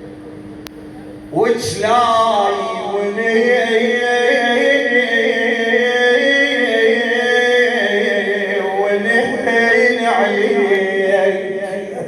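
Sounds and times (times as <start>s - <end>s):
man singing unaccompanied lament: 1.3s - 12.0s.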